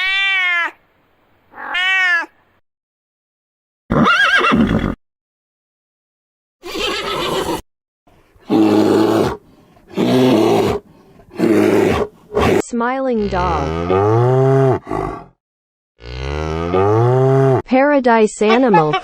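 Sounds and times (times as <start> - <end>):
animal calling: 6.6 - 7.6, 8.4 - 12.6.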